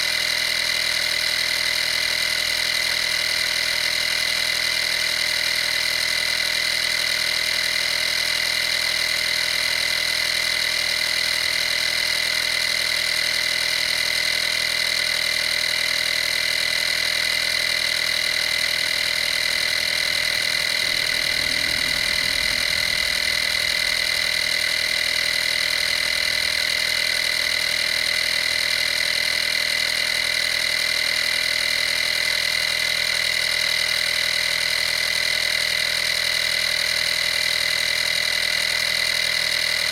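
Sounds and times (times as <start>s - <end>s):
air compressor whining: 11.4s - 30.8s
low rumble: 19.0s - 27.2s.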